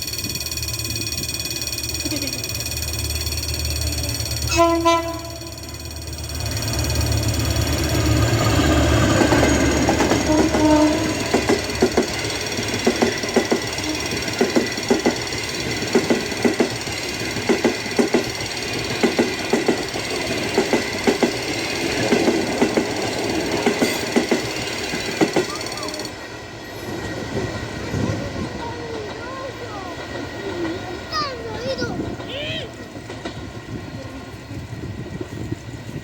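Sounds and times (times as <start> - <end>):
wagon wheels knocking on rail joints: 0.0 - 26.1
diesel locomotive engine: 0.0 - 36.0.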